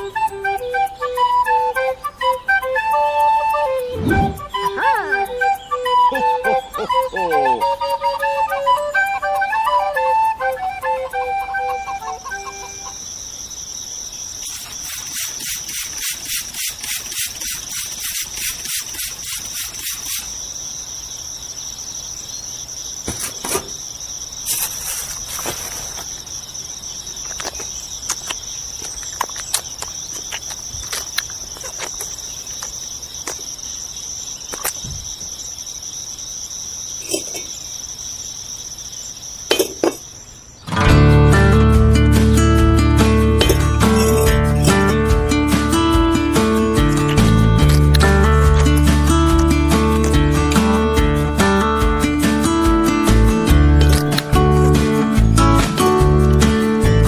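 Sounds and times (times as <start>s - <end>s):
flute melody: 0.0s - 13.0s
insect trill: 0.0s - 57.0s
pulsing insect chirp: 0.0s - 57.0s.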